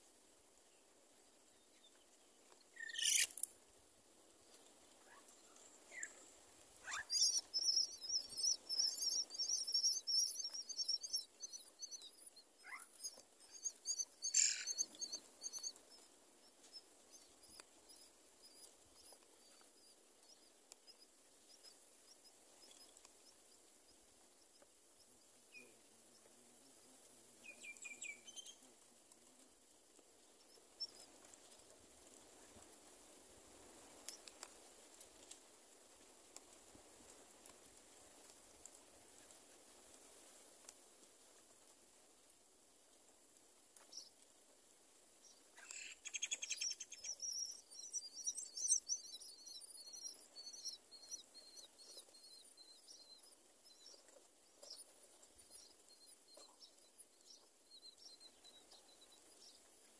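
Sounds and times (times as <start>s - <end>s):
birds chirping: 6.8s - 21.7s, 45.3s - 59.7s.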